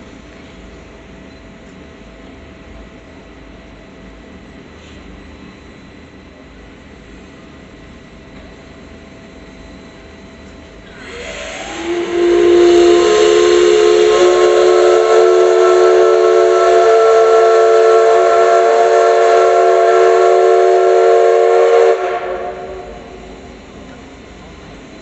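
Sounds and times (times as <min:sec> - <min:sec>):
steam whistle blast: 0:10.9 - 0:23.3
hiss of steam: 0:10.9 - 0:23.5.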